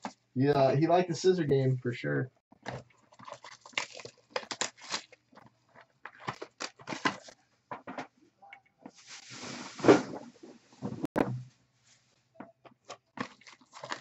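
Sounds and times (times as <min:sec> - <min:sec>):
card packaging tearing: 0:03.2 - 0:05.2, 0:13.2 - 0:14.0.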